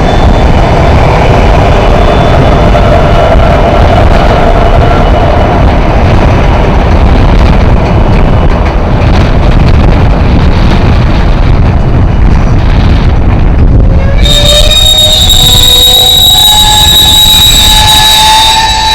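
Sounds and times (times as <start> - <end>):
freight train slowing: 0.0 - 18.9
wind buffeting microphone: 0.0 - 18.9
train brakes squealing: 14.0 - 18.9.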